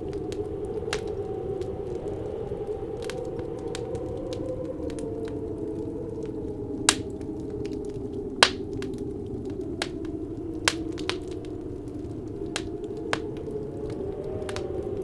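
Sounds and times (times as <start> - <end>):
wind howling: 0.0 - 15.0
wood fire crackling: 0.0 - 15.0
sharp pops of fire: 6.9 - 7.2, 8.4 - 9.0, 9.8 - 11.4.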